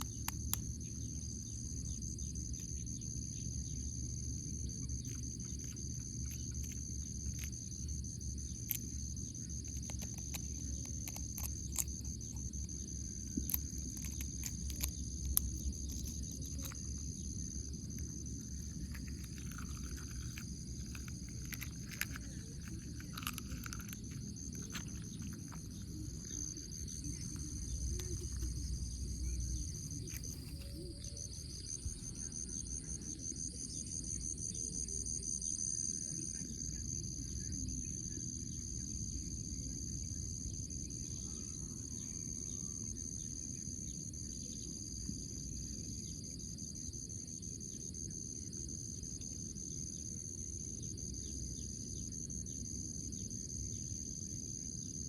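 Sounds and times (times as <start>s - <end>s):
insects chirring: 0.0s - 55.0s
low background rumble: 0.1s - 42.1s.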